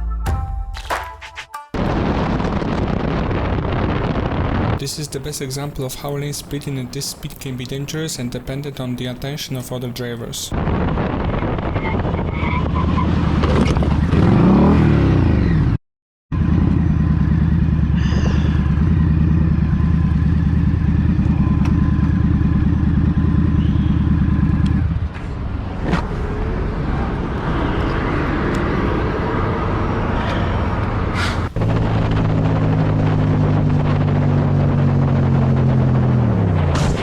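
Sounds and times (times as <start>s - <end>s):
wind and road noise: 2.4s - 37.0s
motorcycle engine running: 15.4s - 26.5s, 31.5s - 36.4s.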